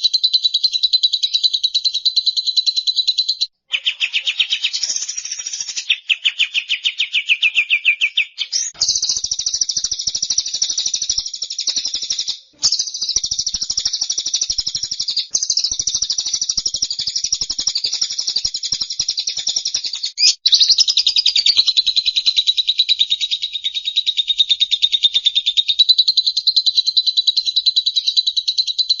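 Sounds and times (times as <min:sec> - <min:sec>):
songbird trilling: 0:00.0 - 0:22.6.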